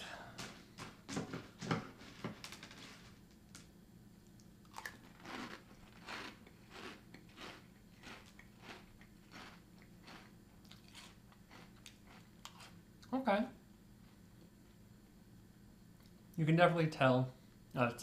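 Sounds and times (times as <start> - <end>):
person chewing crunchy cereal: 4.6 - 12.8.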